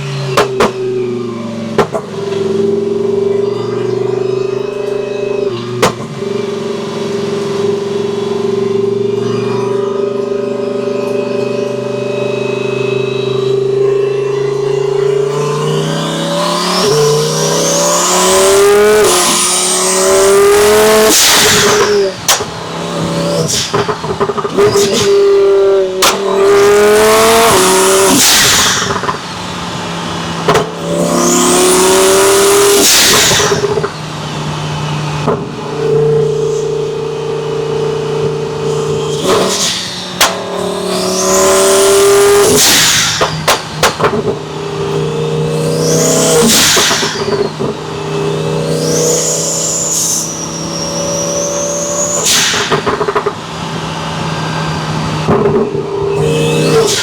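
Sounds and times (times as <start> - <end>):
sports car engine revving: 0.0 - 57.0
exhaust cracks: 14.1 - 50.7, 52.0 - 57.0.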